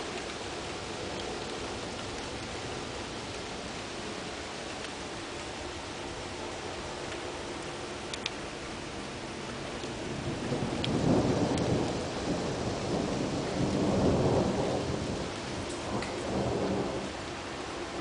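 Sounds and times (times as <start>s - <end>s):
rain hissing: 0.0s - 18.0s
thunder rumbling: 9.7s - 18.0s.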